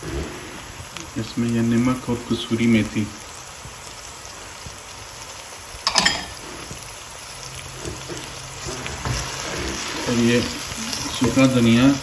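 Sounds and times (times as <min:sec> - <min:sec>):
tomatoes sizzling in oil: 0:00.0 - 0:12.0
spices clattering into pan: 0:05.7 - 0:12.0.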